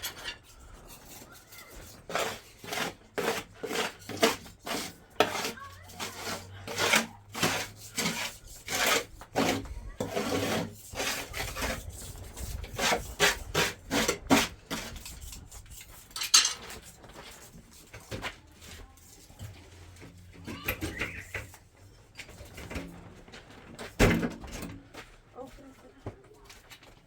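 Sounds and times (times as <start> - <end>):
hand tools scraping: 0.0 - 22.4.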